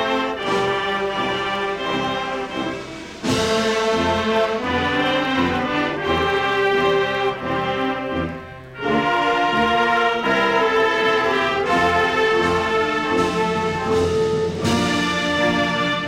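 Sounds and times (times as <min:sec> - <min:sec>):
orchestral brass chords: 0:00.0 - 0:16.0.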